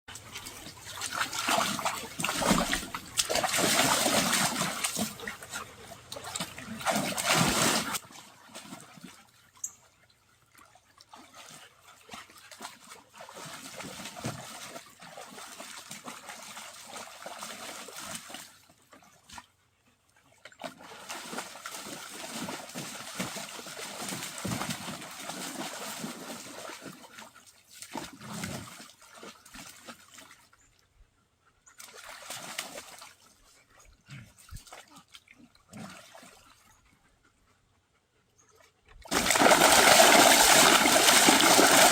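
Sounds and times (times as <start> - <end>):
pool water splashing: 0.1 - 9.0, 39.0 - 41.9.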